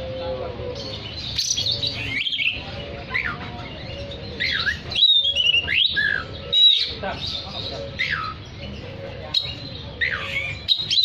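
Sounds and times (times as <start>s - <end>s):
bird singing whistled notes: 4.0s - 7.4s, 9.3s - 11.0s.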